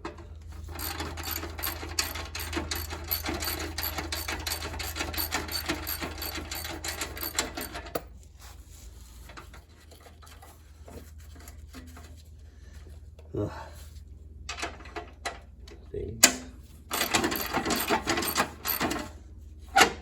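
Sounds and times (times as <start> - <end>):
socket ratchet clicking rapidly: 0.8 - 7.8, 16.9 - 18.9.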